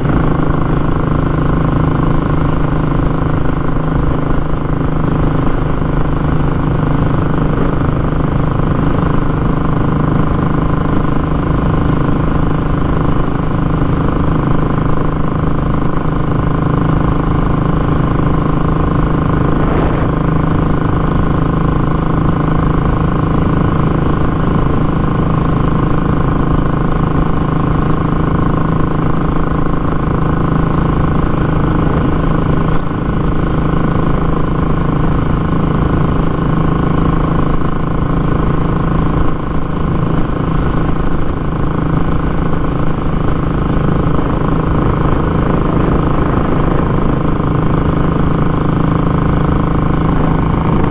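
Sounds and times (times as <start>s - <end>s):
motorcycle engine idling steadily: 0.0s - 50.9s.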